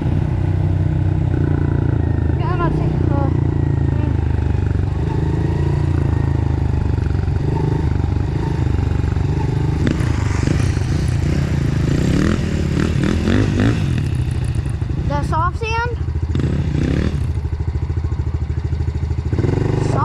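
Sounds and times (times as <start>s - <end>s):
bike rattling and scraping: 0.0s - 15.3s
dirt bike engine running: 0.0s - 20.0s.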